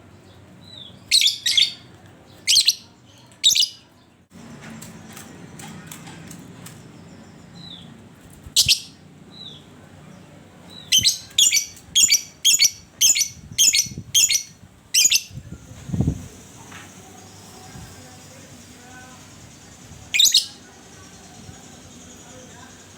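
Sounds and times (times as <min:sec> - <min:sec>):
lovebird chirping and calling: 0:00.6 - 0:03.8, 0:08.5 - 0:09.6, 0:10.7 - 0:15.4, 0:19.4 - 0:22.9.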